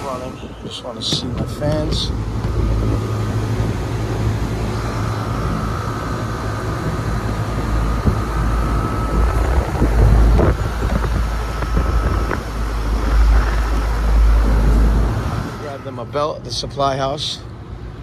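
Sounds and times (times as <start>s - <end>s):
wind buffeting microphone: 0.0s - 15.8s
air conditioner whine and rumble: 0.0s - 18.0s.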